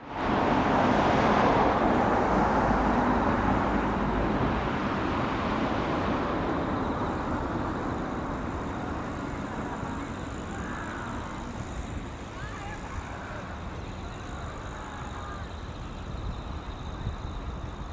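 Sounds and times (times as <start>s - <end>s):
high-speed train rushing past: 0.0s - 17.9s.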